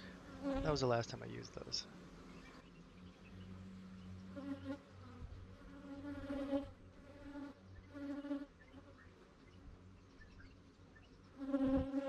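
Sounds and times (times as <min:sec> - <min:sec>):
bees buzzing close by: 0:00.0 - 0:00.9, 0:03.3 - 0:09.1, 0:11.3 - 0:12.0
low hum of swarm: 0:00.0 - 0:12.0.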